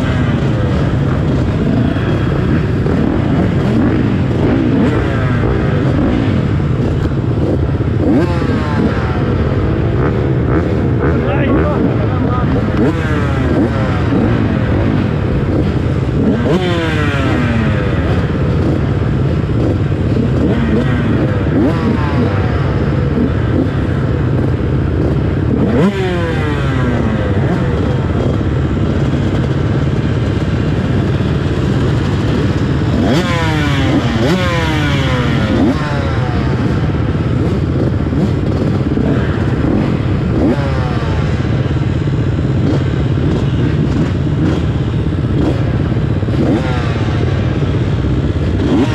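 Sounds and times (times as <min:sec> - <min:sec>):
motocross bike engines revving: 0:00.0 - 0:48.9.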